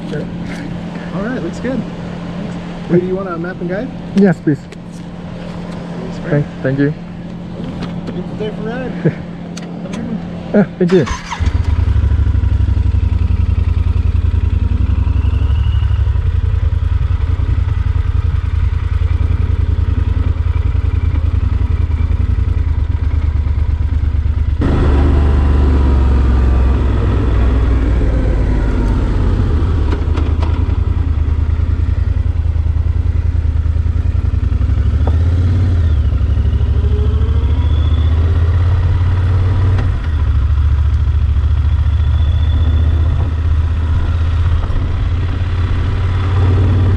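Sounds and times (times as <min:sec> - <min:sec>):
motorcycle engine running: 0:11.0 - 0:46.9.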